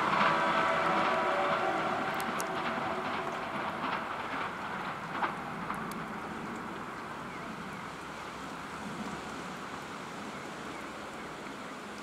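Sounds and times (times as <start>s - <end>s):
train approaching rumble: 0.0s - 12.0s.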